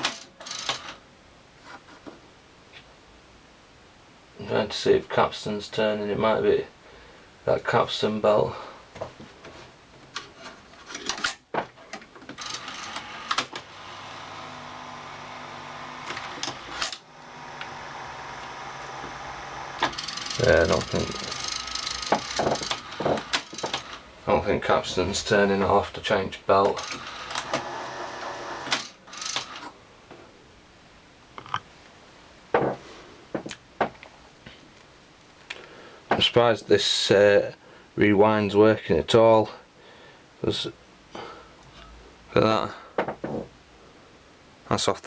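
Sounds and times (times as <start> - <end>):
sharp mechanical clicks: 0.0 - 1.0, 19.8 - 24.0, 26.7 - 29.7
tape mechanism clicks and knocks: 0.0 - 1.0, 10.9 - 13.9, 14.5 - 24.1, 26.6 - 29.7
steady motor whirr: 12.6 - 24.1.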